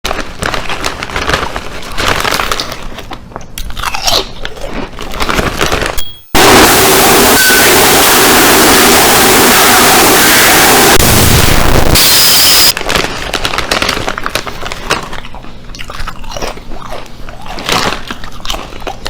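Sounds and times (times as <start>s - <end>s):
crunchy food being chewed: 1.4s - 6.0s, 14.0s - 19.0s
loud steady rushing noise: 6.4s - 12.7s.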